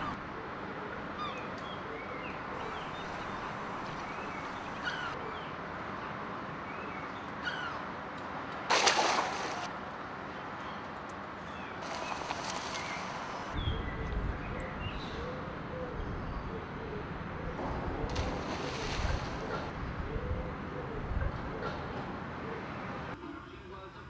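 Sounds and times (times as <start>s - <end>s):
steady outdoor hiss: 0.0s - 24.0s
small birds chirping: 1.2s - 7.8s.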